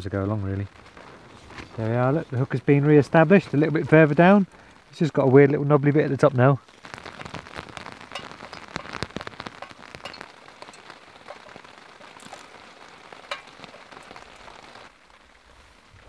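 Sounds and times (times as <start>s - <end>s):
rain pattering on a tarp: 0.0s - 16.0s.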